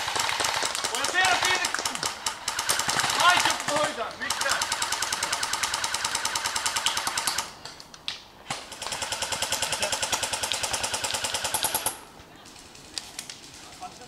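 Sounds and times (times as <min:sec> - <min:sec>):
airsoft guns firing: 0:00.0 - 0:07.6, 0:08.4 - 0:12.0.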